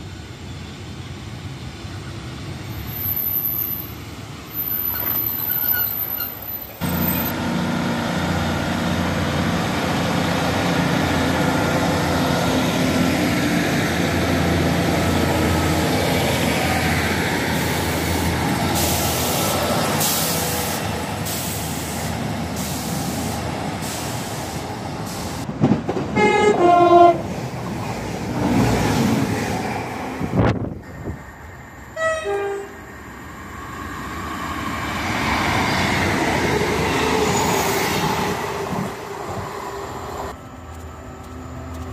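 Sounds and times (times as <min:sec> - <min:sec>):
diesel train engines running: 0:00.0 - 0:41.9
trains passing: 0:00.0 - 0:41.9
two-tone train horn: 0:26.2 - 0:27.3, 0:32.0 - 0:32.8.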